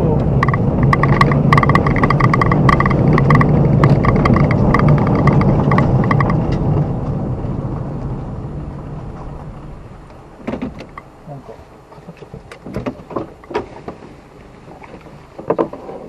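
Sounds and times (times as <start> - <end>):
flat tyre thumping: 0.0 - 11.1
car engine: 0.0 - 16.0
road noise: 0.0 - 16.0.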